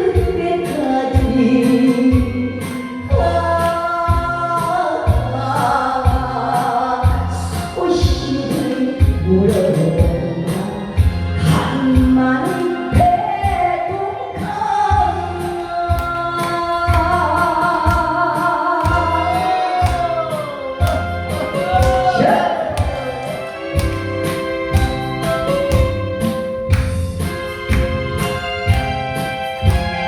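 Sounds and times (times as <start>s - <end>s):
backing track with drum beat: 14.4s - 30.0s.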